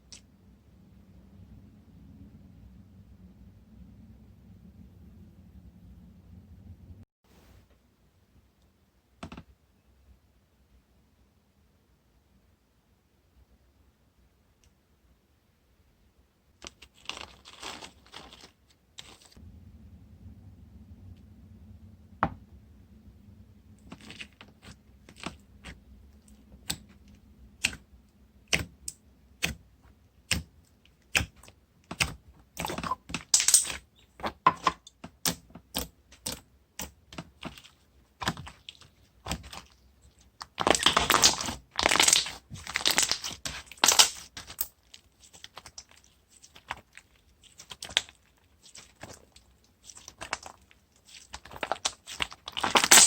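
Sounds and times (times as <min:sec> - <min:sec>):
slime clicking and popping: 0:28.5 - 0:29.6, 0:30.2 - 0:33.8.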